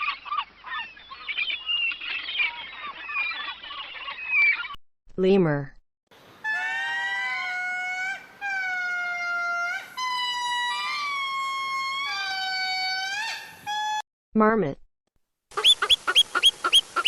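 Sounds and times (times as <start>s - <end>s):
lemur wailing calls: 15.6s - 17.0s.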